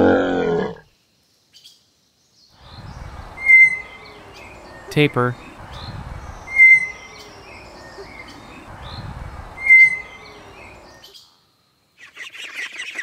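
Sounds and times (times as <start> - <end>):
background noise: 0.0 - 13.0
high chirping chatter of calls: 1.5 - 11.4, 12.0 - 13.0.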